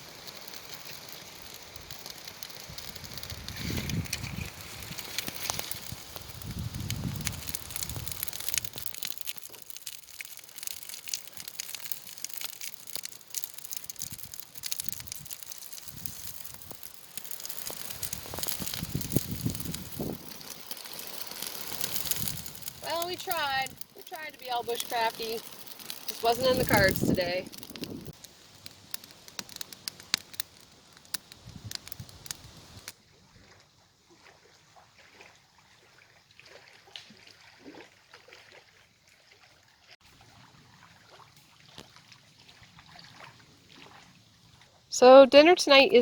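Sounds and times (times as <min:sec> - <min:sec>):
bark tinder crackling: 0:00.0 - 0:32.9.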